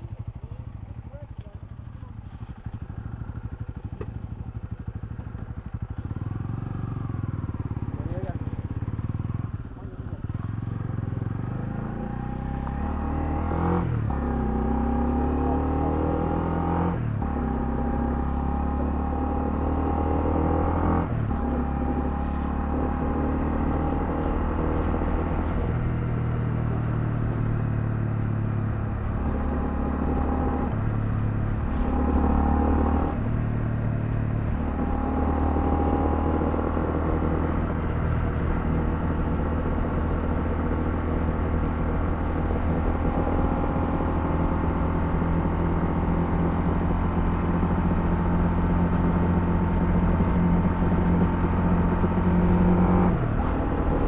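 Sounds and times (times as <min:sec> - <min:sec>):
motorcycle engine shifting gears: 0:00.0 - 0:54.0.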